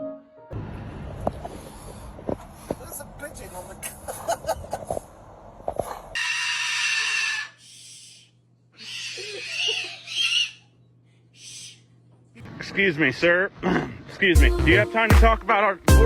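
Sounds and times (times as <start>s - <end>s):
harsh hissing bird screeches: 6.2s - 10.7s, 11.4s - 11.8s.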